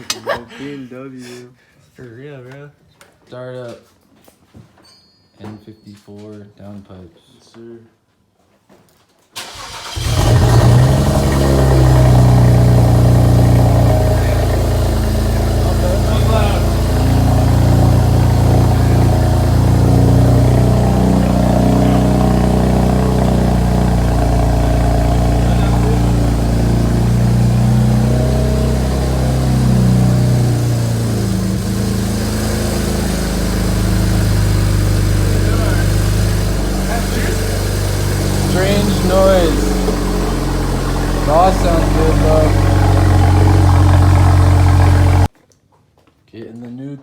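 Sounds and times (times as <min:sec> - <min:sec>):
car engine starting and idling: 0:09.4 - 0:45.3.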